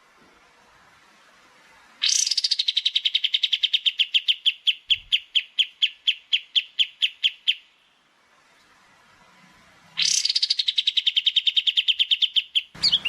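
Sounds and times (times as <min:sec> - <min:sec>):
small songbird singing: 0:02.0 - 0:07.8, 0:10.0 - 0:13.0.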